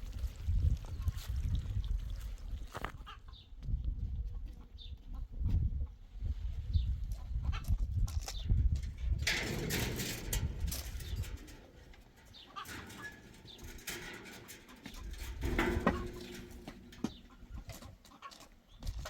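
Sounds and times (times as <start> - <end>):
knocks and rustles: 8.1 - 19.0.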